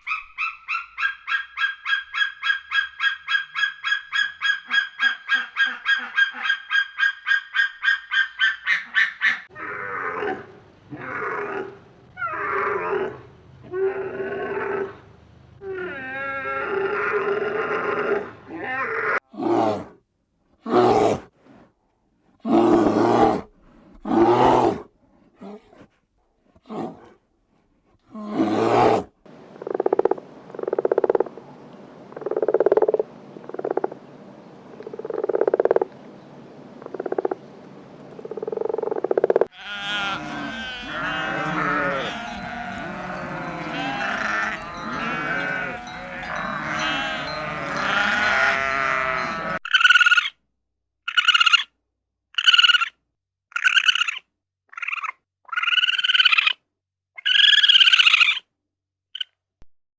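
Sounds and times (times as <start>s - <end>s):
animal calls: 0.0s - 10.4s, 39.5s - 50.3s.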